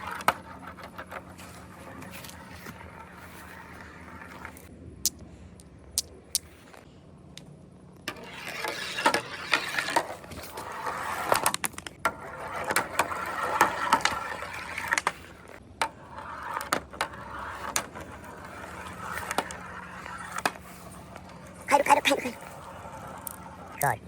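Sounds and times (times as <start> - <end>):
marbles rolling on track: 0.0 - 4.7, 8.1 - 24.0
marbles clicking and knocking: 10.8 - 24.0.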